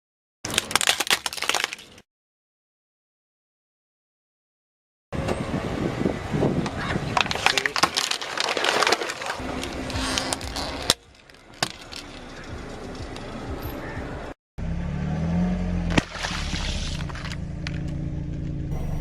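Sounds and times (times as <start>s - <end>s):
brittle material crunching and cracking: 0.5s - 2.0s, 7.2s - 12.3s.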